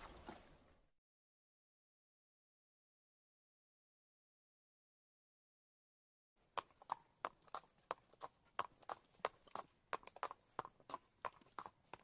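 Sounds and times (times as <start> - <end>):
horse hooves clip-clopping: 6.4 - 12.0.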